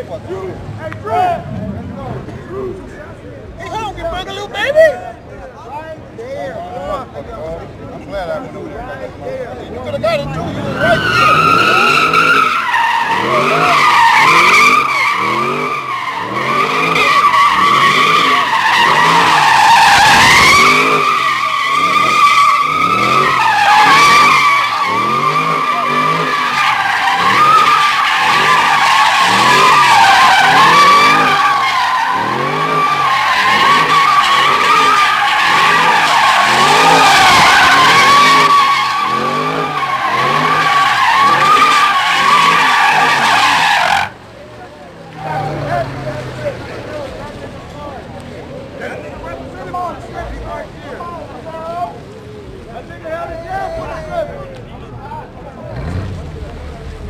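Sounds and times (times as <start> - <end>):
tyres squealing: 9.6 - 48.0
car engine revving: 9.7 - 52.8, 55.1 - 57.0.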